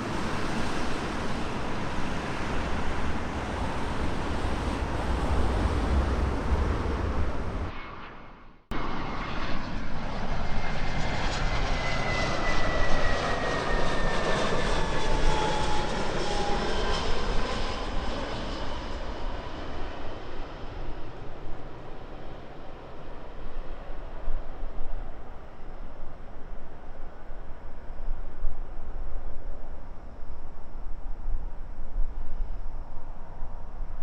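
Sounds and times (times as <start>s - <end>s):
wind rumble on microphone: 0.0s - 7.7s, 16.2s - 34.0s
jet airliner passing: 0.0s - 34.0s.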